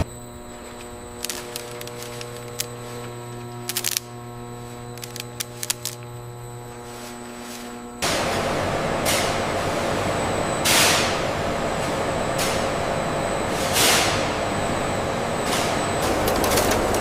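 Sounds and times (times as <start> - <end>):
factory machinery running: 0.0 - 17.0
rapid clatter: 0.7 - 4.1.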